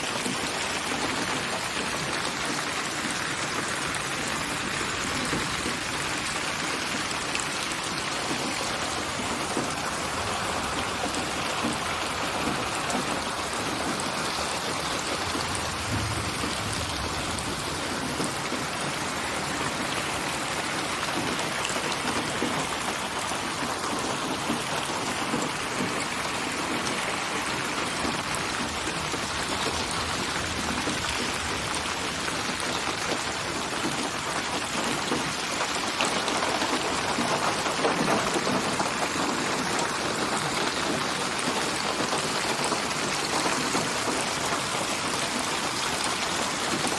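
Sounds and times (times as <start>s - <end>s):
rain falling: 0.0s - 46.9s
low rumble: 15.5s - 18.0s.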